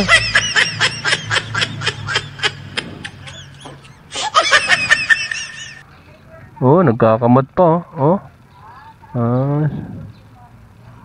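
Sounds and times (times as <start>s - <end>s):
person giggling: 0.0s - 5.8s.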